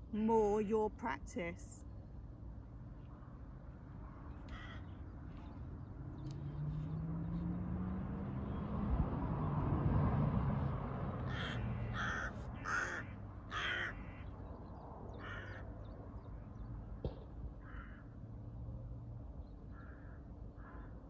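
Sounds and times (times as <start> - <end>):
crow cawing: 4.4 - 5.1, 11.2 - 14.4, 15.2 - 15.7, 17.6 - 18.2, 19.7 - 21.0.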